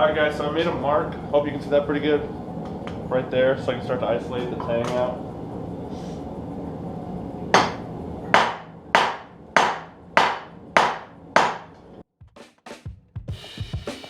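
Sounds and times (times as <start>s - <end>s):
hammer striking steel on anvil: 7.6s - 11.8s.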